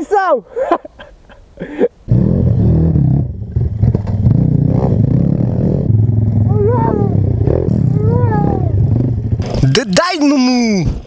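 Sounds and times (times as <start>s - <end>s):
pit bike engine running hard: 2.1s - 9.6s
drawn-out wavering shout: 6.4s - 9.1s.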